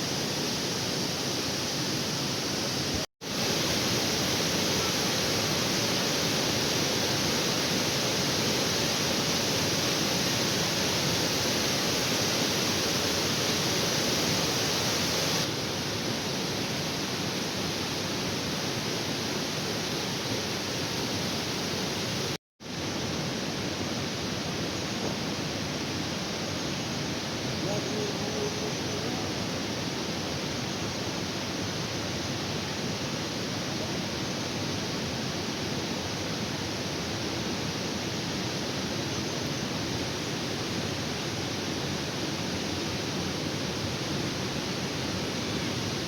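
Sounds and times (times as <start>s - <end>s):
waterfall rushing: 1.2s - 22.4s.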